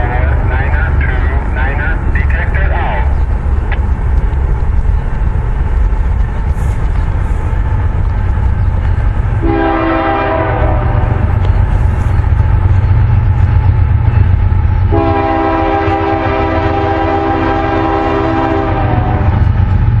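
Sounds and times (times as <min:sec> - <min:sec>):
freight train rumbling past: 0:00.0 - 0:20.0
locomotive horn blast: 0:09.4 - 0:11.3, 0:14.9 - 0:19.4.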